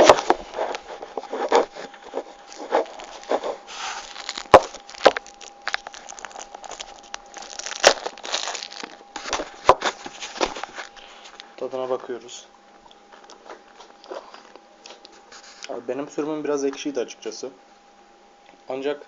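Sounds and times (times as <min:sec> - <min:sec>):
snack wrapper crinkling: 0:02.5 - 0:11.4
wrapper sharp snaps: 0:04.0 - 0:09.4.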